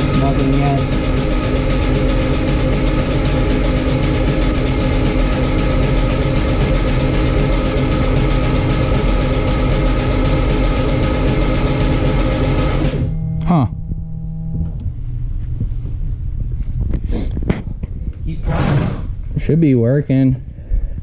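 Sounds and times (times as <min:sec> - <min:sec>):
starter cranking engine: 0:00.0 - 0:13.1.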